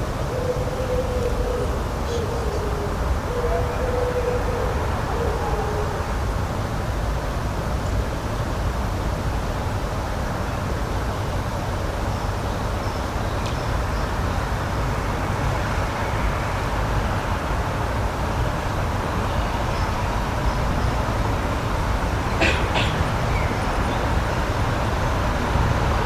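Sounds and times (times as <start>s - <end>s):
outdoor rushing noise: 21.1s - 26.0s.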